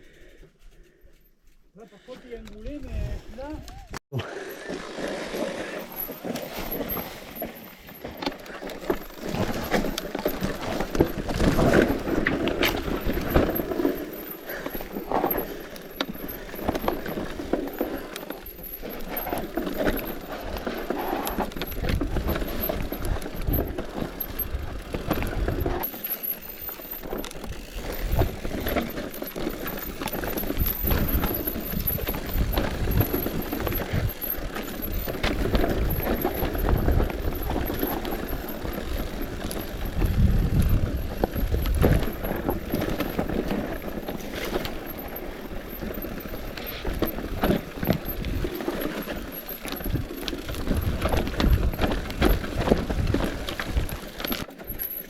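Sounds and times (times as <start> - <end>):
bicycle tyres on stones: 0.0 - 55.0
bicycle frame and chain rattle: 2.6 - 55.0
wind on microphone: 39.7 - 43.0.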